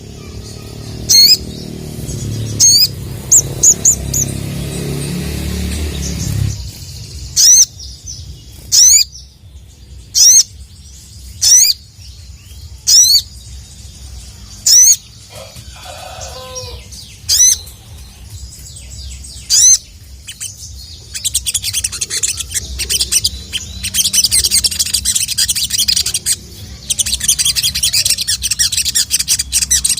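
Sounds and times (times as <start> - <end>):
bird chirping: 0.0 - 29.9.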